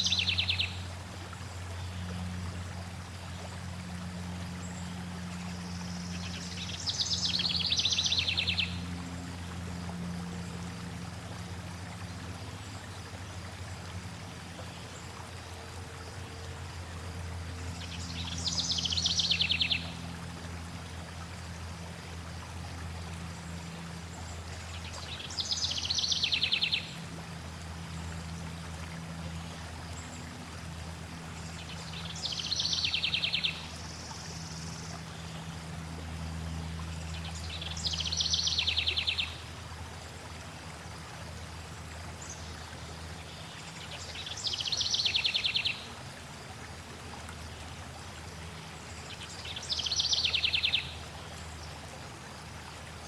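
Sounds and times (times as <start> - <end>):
songbird singing with trill: 0.0 - 0.8, 5.8 - 8.9, 17.8 - 20.0, 24.8 - 26.9, 31.5 - 35.5, 37.0 - 39.4, 43.3 - 45.9, 49.1 - 51.0
flowing water rushing: 0.0 - 53.0.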